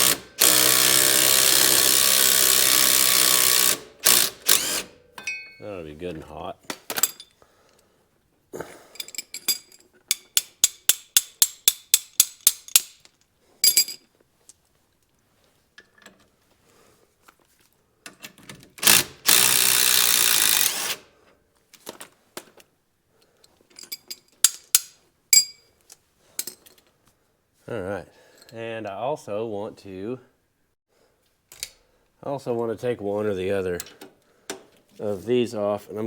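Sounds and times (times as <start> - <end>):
clinks of metal tools: 5.2 - 5.7, 6.9 - 7.4, 8.9 - 14.6, 23.4 - 26.9
ratchet wrench clicking: 10.1 - 13.1.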